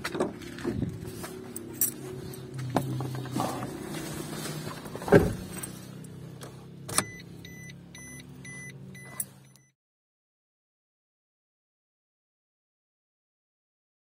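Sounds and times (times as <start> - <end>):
car engine idling: 0.0 - 9.5
heavy thump: 5.0 - 5.5.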